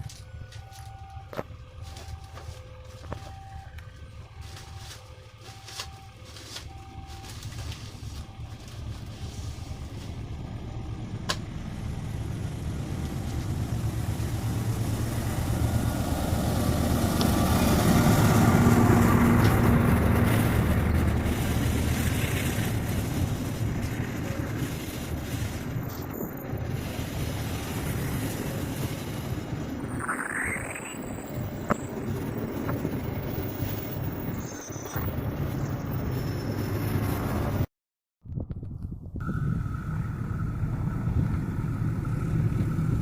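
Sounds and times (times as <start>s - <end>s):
diesel train rumbling past: 0.3s - 30.0s, 31.0s - 37.7s, 39.2s - 43.0s
level crossing two-tone signal: 29.8s - 31.9s.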